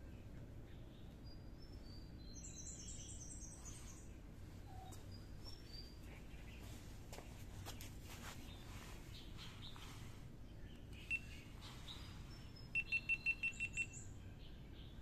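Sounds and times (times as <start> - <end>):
faint higher chirps: 8.5 - 15.0.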